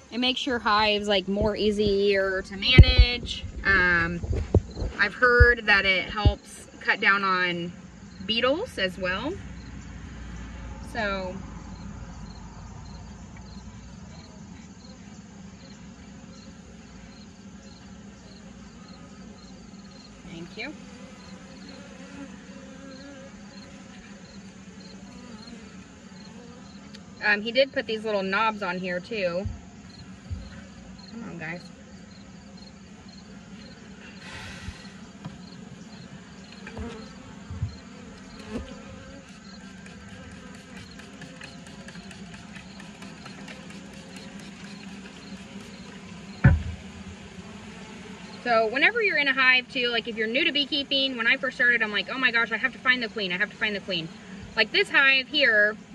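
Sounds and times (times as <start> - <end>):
bees buzzing: 0.0 - 55.9
brief hiss: 34.0 - 35.0
light knocks: 46.4 - 46.9.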